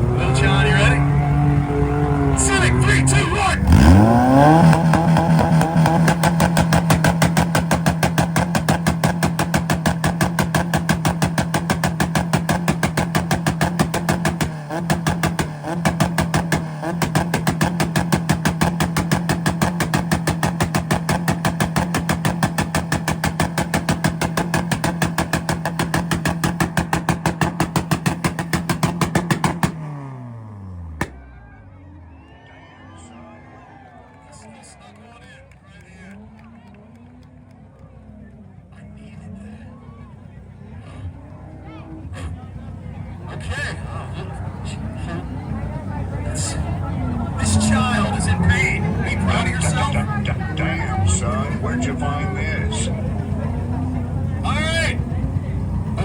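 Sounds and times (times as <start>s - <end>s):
car engine on rev limiter: 0.0s - 32.3s, 35.9s - 56.0s
exhaust pop: 2.4s - 31.4s, 44.1s - 56.0s.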